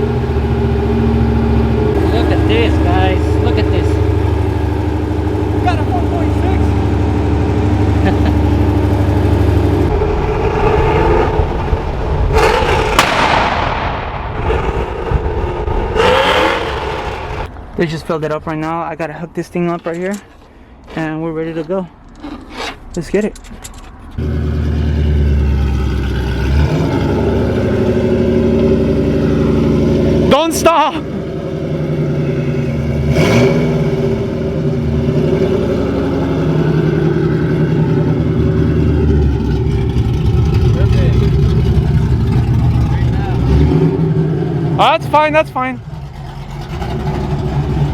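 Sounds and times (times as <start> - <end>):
choppy car engine: 0.0 - 47.9
exhaust cracks: 0.0 - 47.9.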